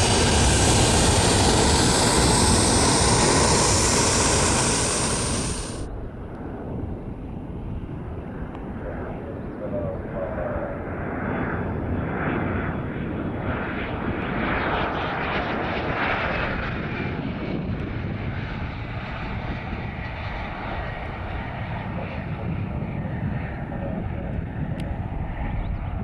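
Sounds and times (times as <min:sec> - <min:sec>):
faint high whine: 0:00.0 - 0:05.9
plane engine rumble passing: 0:00.0 - 0:05.9.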